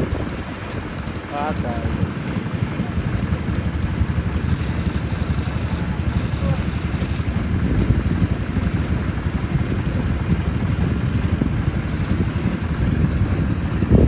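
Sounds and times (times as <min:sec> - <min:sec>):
engine rumbling: 0:00.0 - 0:14.0.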